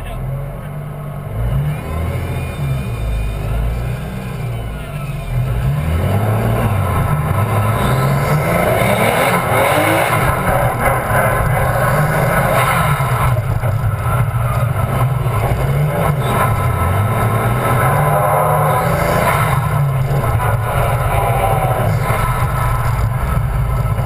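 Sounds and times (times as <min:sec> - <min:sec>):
car engine revving: 0:00.0 - 0:24.0
rough wind noise: 0:05.5 - 0:24.0.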